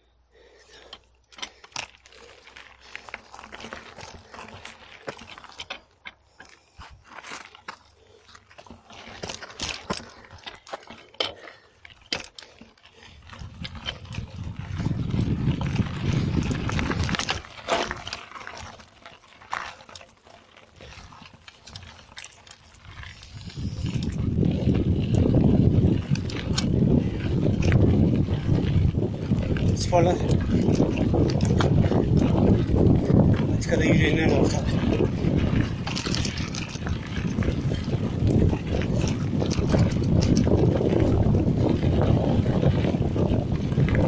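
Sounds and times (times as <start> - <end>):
bike rattling over dirt trail: 0.3 - 44.0
wind rumble on microphone: 13.1 - 18.7, 22.8 - 44.0.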